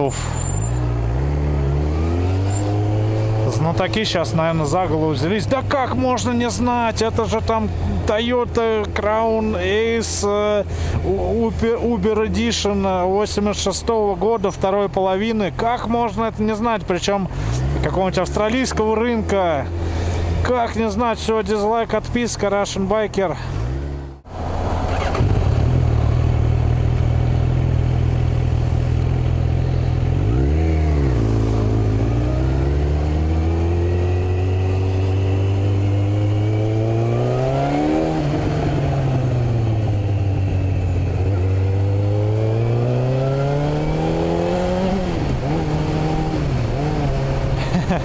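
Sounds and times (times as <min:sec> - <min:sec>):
motorcycle engine accelerating: 0:00.2 - 0:05.4, 0:23.6 - 0:48.0.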